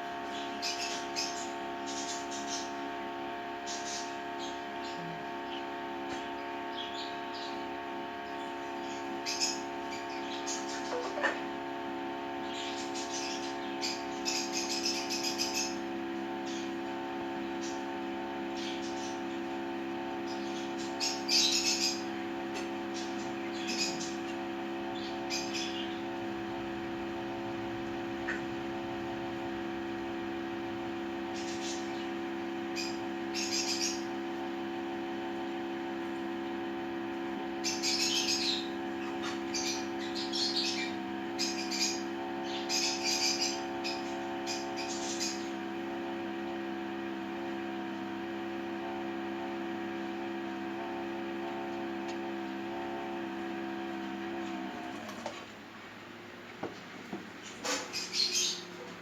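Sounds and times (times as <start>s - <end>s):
high bird chirps: 12.4s - 15.8s, 20.3s - 22.1s, 23.0s - 24.3s, 24.9s - 26.1s, 31.3s - 34.1s, 37.6s - 45.6s, 57.6s - 58.7s.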